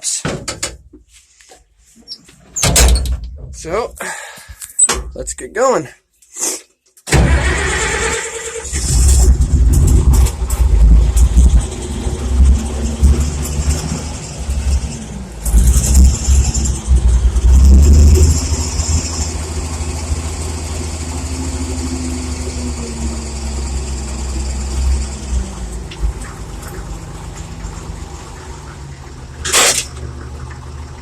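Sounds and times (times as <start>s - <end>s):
tractor engine running: 7.1s - 31.0s.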